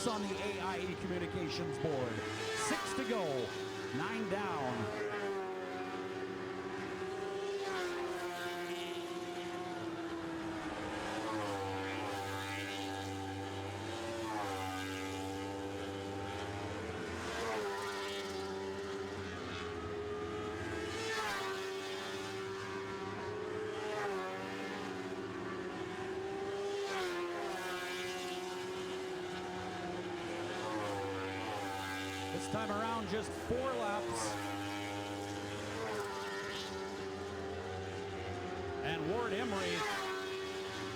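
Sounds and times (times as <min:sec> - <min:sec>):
race car engines high-revving: 0:00.0 - 0:40.9.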